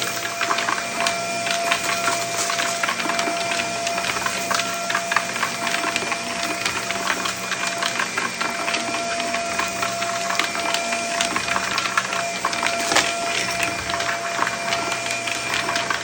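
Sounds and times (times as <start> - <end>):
debris crackling through hose: 0.0 - 16.0
vacuum cleaner running: 0.0 - 16.0.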